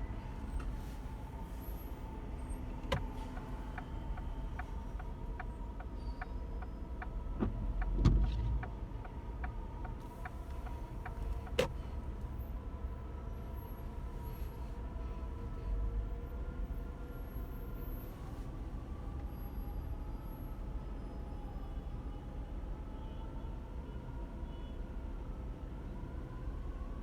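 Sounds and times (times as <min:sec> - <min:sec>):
engine and road rumble: 0:00.0 - 0:27.0.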